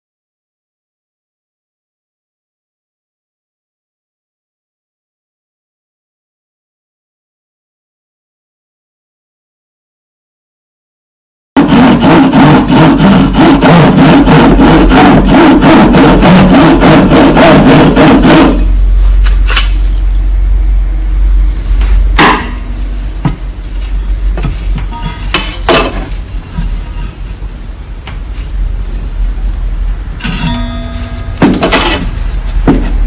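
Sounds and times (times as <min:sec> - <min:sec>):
rapid hammering: 0:11.6 - 0:18.7, 0:22.2 - 0:23.5
low steady hum: 0:17.0 - 0:33.0.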